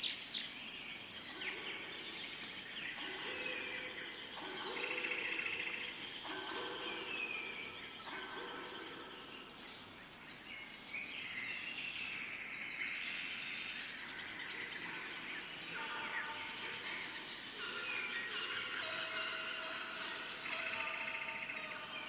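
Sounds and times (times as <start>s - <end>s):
birds chirping: 0.0s - 22.0s
high insect drone: 0.0s - 22.0s.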